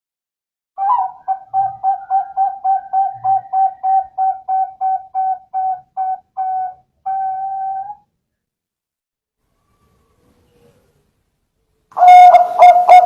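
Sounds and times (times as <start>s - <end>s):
dove cooing: 0.8s - 8.0s, 12.0s - 13.0s.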